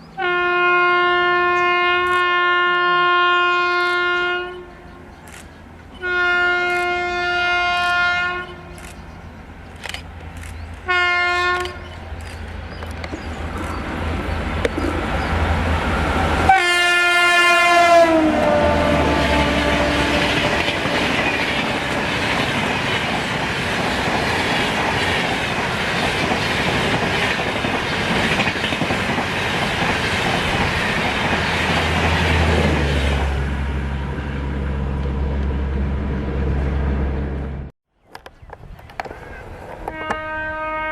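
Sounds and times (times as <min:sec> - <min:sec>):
locomotive horn blasts: 0:00.2 - 0:04.8, 0:06.0 - 0:08.8, 0:10.8 - 0:11.9, 0:16.4 - 0:22.4, 0:39.9 - 0:40.9
train coaches rumbling and clattering: 0:03.6 - 0:37.7.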